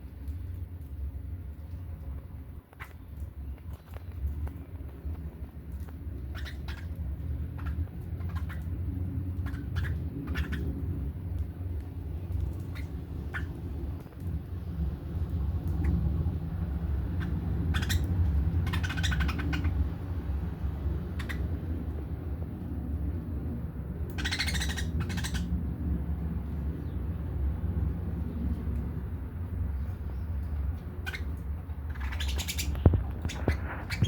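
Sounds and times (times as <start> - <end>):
low steady rumble: 0.0 - 34.0
budgerigars chattering and squawking: 6.3 - 8.8, 9.4 - 10.8, 12.6 - 13.6, 17.0 - 20.0, 21.1 - 21.6, 24.1 - 25.5, 31.0 - 34.0.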